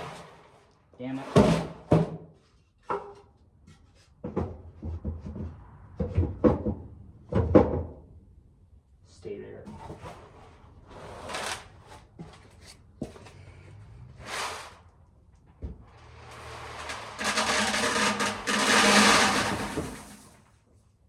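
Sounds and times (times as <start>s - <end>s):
corn knocking and scraping: 0.0s - 0.6s, 9.7s - 14.8s, 15.6s - 20.5s
corn pouring rattle: 14.2s - 14.8s, 16.0s - 20.4s.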